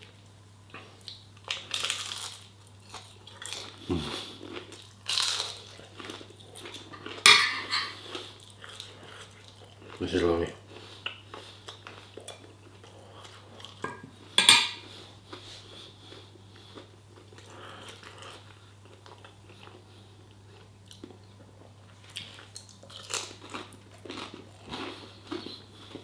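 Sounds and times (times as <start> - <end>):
cutlery clinking on a plate: 6.9 - 8.0, 13.8 - 14.9.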